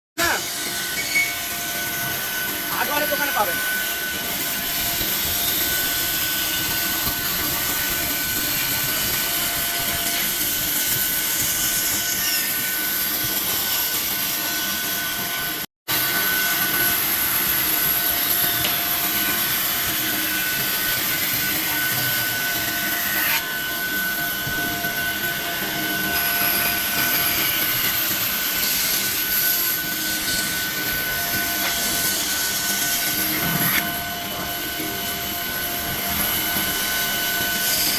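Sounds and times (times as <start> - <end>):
woodworking machine whining: 0.2 - 37.9.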